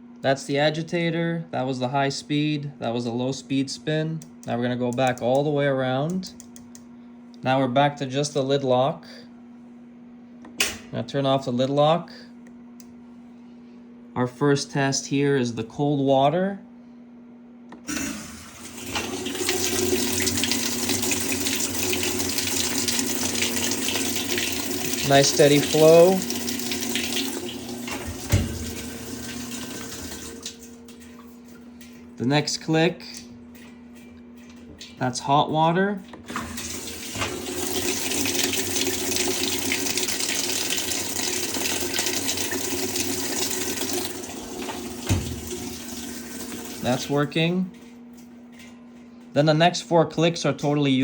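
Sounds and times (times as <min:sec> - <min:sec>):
water pouring into washer tub: 0:17.9 - 0:31.6, 0:36.3 - 0:47.3.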